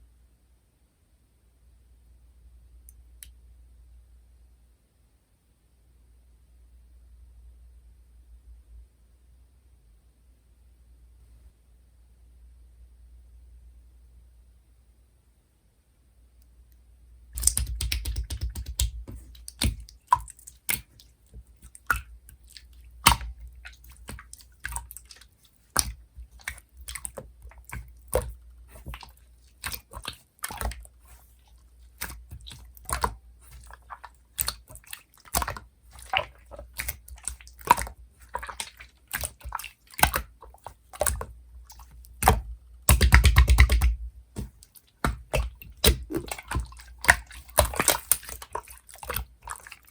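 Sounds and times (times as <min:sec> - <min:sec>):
slime clicking and squishing: 0:17.4 - 0:49.9.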